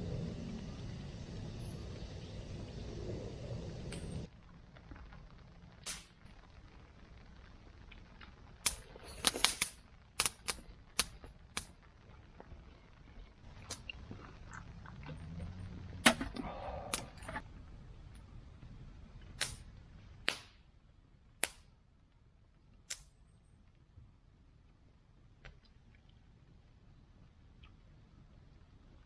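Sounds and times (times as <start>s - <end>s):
sharp snaps and cracks: 3.9s - 17.4s, 19.1s - 20.8s, 21.4s - 23.8s.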